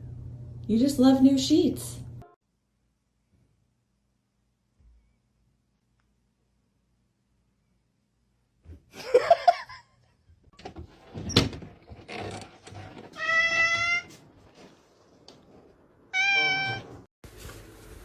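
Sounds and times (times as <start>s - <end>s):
cat meowing: 13.2s - 14.1s, 16.1s - 16.9s.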